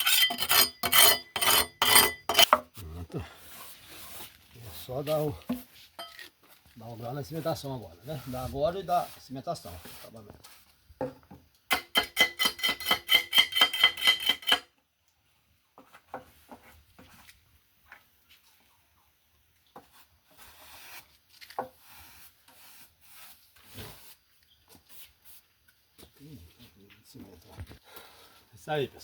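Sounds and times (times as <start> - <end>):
trowel scraping wet cement: 0.0 - 2.7, 11.8 - 14.6
quiet scrapes and taps: 3.6 - 6.8, 9.8 - 11.4, 15.8 - 18.6.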